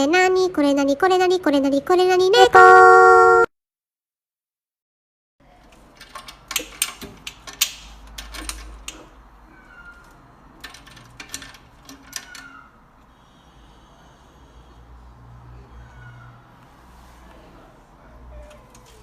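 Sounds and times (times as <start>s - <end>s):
cat meowing: 15.7s - 16.4s.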